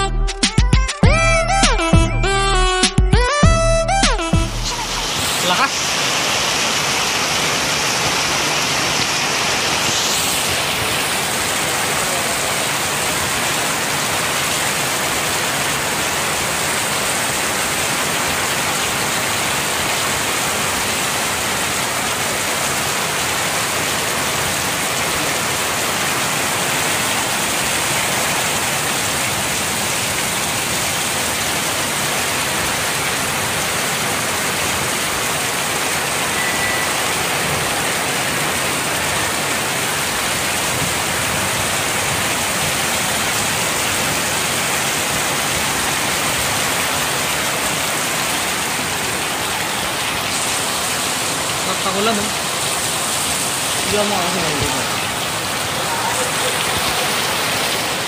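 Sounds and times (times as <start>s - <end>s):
heavy rain on metal roof: 4.6s - 58.0s.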